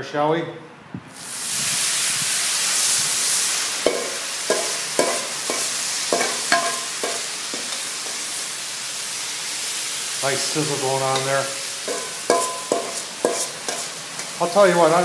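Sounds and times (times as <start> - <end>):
potatoes sizzling on a griddle: 1.2 - 15.0.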